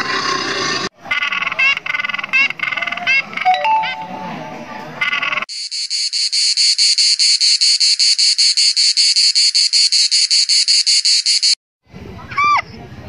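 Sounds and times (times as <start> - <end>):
insect shrill chirps: 5.5 - 11.6.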